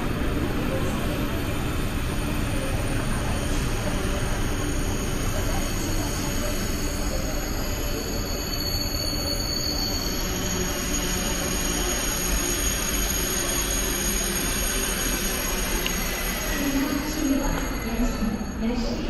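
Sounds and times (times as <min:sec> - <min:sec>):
train rumbling on rails: 0:00.0 - 0:19.0
high squeal: 0:04.4 - 0:19.0.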